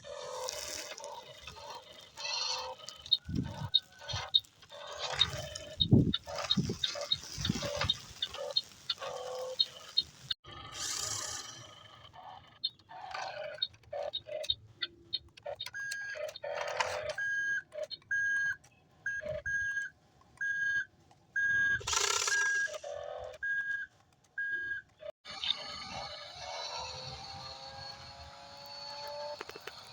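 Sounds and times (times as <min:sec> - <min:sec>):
reversing alarm beeping: 0:17.0 - 0:24.9.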